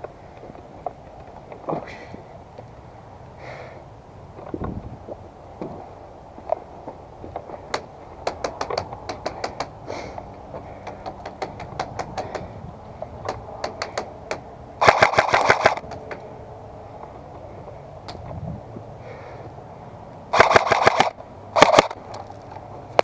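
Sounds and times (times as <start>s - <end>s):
airsoft guns firing: 14.8s - 15.8s, 20.3s - 22.0s.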